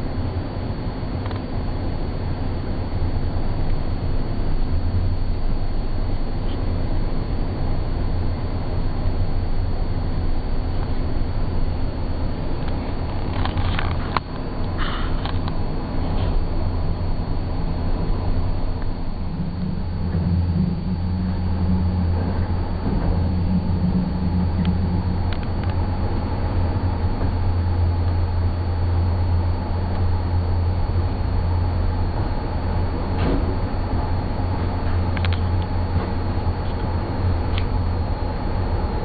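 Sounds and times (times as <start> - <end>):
train rumbling on track: 10.6 - 39.0.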